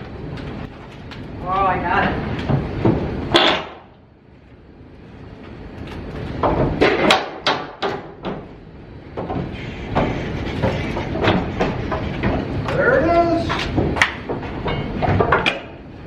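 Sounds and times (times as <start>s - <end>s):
sharp wooden knocks: 2.5s - 3.9s, 6.4s - 8.5s, 9.2s - 12.8s
wooden planks knocking and creaking: 6.3s - 8.5s, 9.2s - 15.8s.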